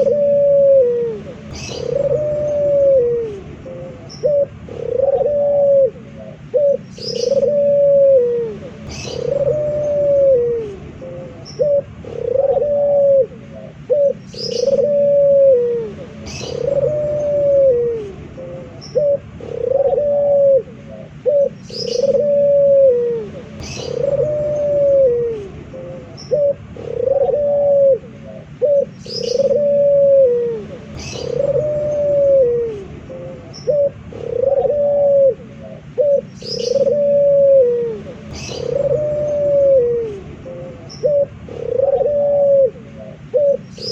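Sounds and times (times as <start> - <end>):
dove cooing: 0.0 - 43.9
small bird high chirps: 38.2 - 39.5.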